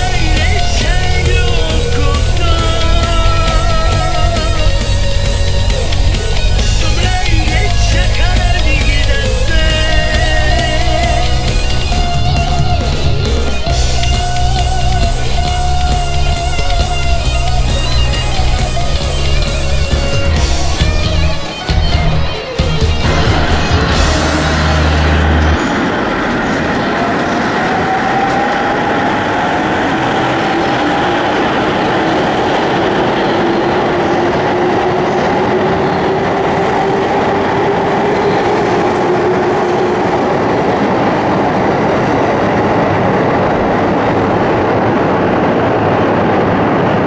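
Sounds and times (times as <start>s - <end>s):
train wheels rumbling: 0.0s - 47.0s.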